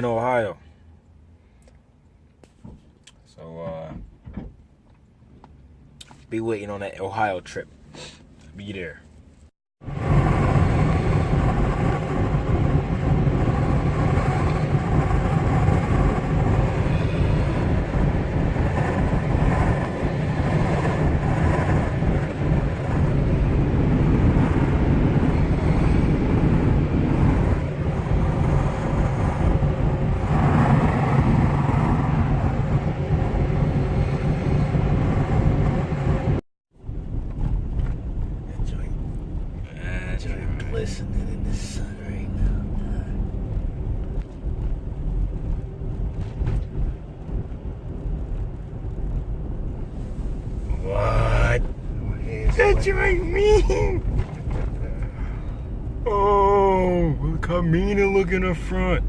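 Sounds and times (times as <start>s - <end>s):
car road and engine noise: 0.0s - 59.0s.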